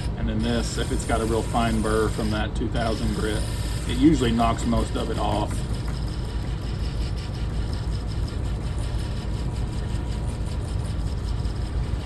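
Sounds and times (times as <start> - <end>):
sharpening machine humming: 0.0 - 12.0.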